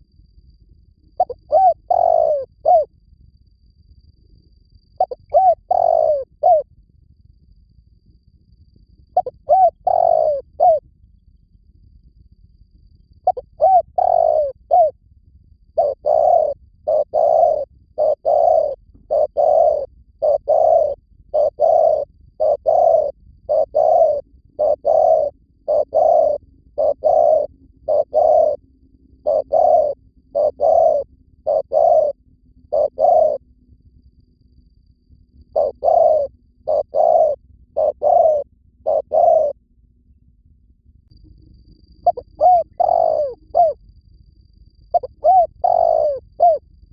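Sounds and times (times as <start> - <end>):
dove cooing: 1.2 - 2.9, 5.0 - 6.7, 9.2 - 10.8, 13.2 - 15.0, 15.8 - 28.6, 29.2 - 33.4, 35.5 - 39.6, 42.0 - 43.8, 44.9 - 46.6
small bird chirping: 1.2 - 2.9, 5.0 - 6.6, 9.2 - 10.8, 13.3 - 14.9, 15.8 - 28.6, 29.2 - 33.4, 35.5 - 39.5, 41.6 - 43.8, 44.9 - 46.6.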